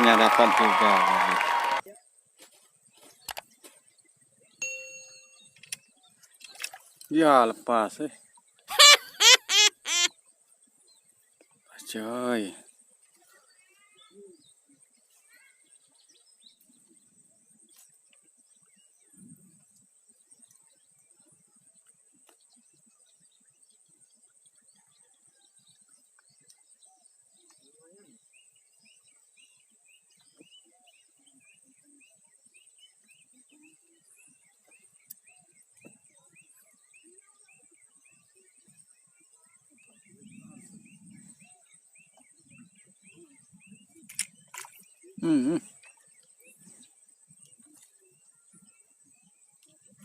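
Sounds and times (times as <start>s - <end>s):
faint high-pitched tone: 4.6s - 5.6s
faint bird chirps: 8.2s - 50.0s
small chirping calls: 8.4s - 10.2s.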